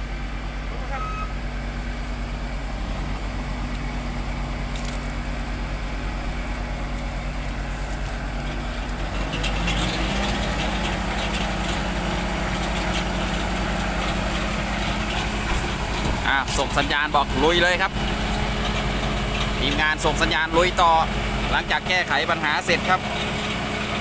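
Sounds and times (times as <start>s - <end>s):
diesel engine idling and revving: 0.0s - 24.0s.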